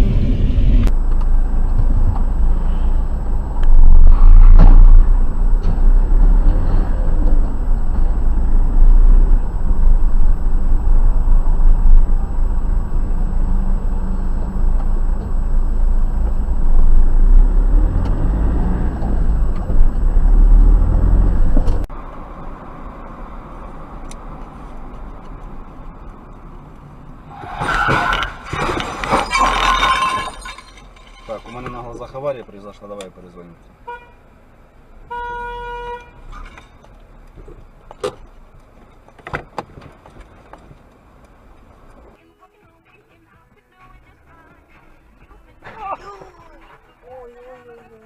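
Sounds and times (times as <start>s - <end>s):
car road and engine rumble: 0.0s - 48.0s
burst of noise: 2.4s - 21.8s.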